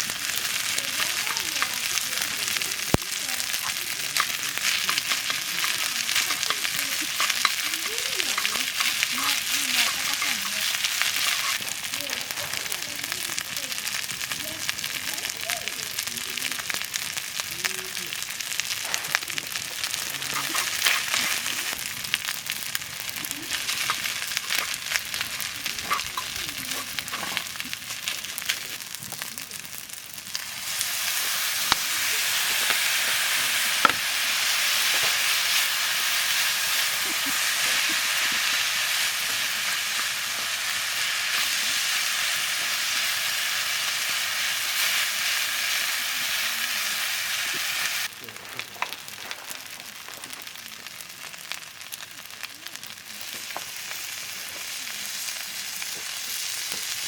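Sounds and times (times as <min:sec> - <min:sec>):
stirring: 0:00.0 - 0:12.4, 0:23.1 - 0:28.7, 0:30.3 - 0:48.0
crackles: 0:00.0 - 0:57.0
food sizzling in a pan: 0:00.0 - 0:57.0.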